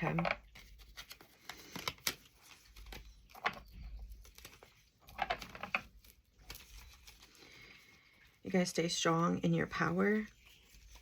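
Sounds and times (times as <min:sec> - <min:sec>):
cards being shuffled: 0:00.0 - 0:07.8.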